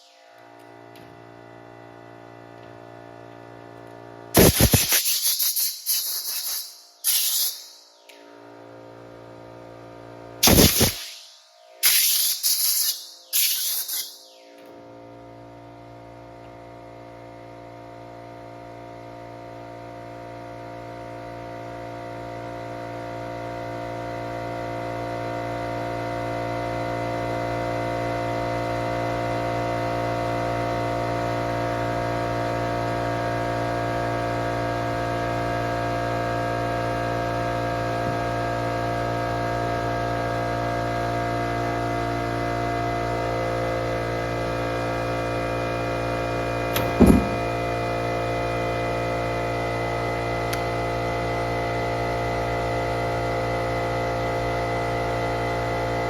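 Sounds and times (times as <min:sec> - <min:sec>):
electrical hum: 0:41.6 - 0:56.0.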